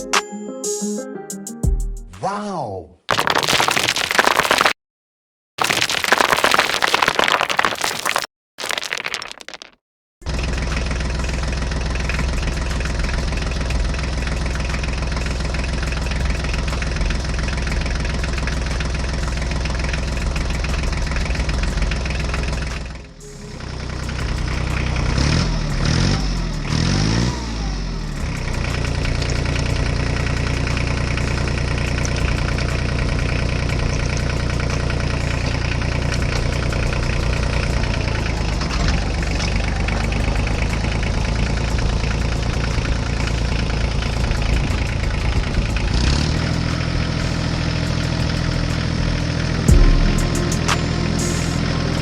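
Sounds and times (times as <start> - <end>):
tractor engine idling: 10.3 - 26.9, 27.8 - 52.0.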